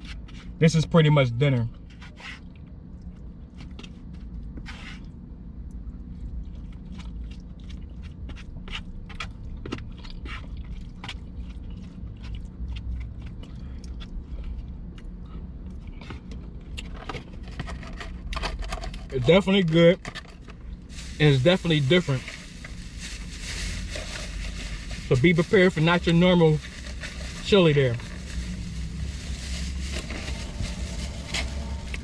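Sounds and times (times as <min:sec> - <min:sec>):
chewing: 0:02.3 - 0:17.3
low hum: 0:20.0 - 0:32.0.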